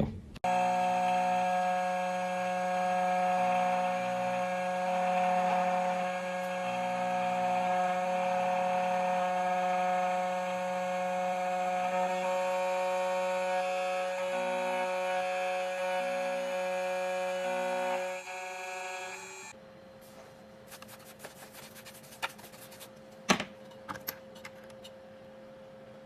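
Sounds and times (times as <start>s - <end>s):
key cutting machine whine: 0.4s - 19.6s.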